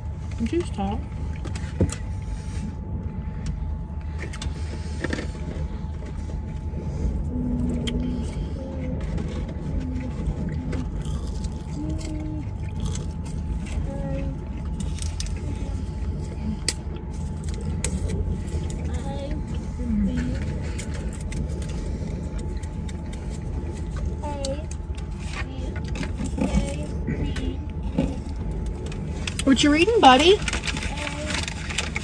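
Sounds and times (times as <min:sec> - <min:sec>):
engine idling rumble: 0:00.0 - 0:32.0
food clicks and rustles: 0:07.7 - 0:19.6, 0:20.2 - 0:27.0, 0:27.7 - 0:32.0.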